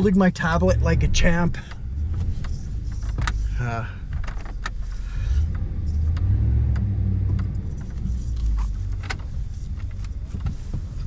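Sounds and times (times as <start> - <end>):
truck engine rumble: 0.0 - 11.0.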